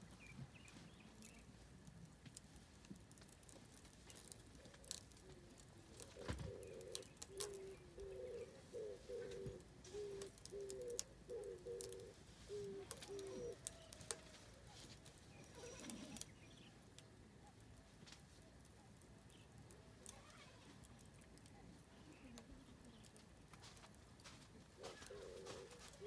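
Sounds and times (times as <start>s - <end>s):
firewood crackling and popping: 0.0s - 26.0s
dove cooing: 4.2s - 16.4s, 24.8s - 26.0s.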